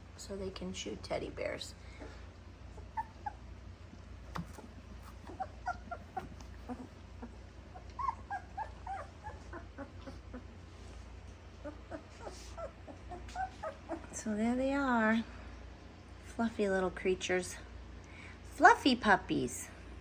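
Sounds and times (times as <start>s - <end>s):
low steady hum: 0.0s - 20.0s
puppies whimpering and squeaking: 2.0s - 3.6s, 4.5s - 14.2s.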